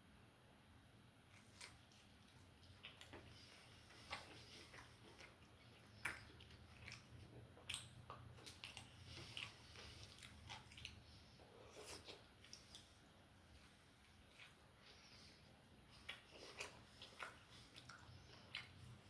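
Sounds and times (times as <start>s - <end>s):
faint low hum: 0.0s - 19.0s
person chewing food: 1.3s - 19.0s.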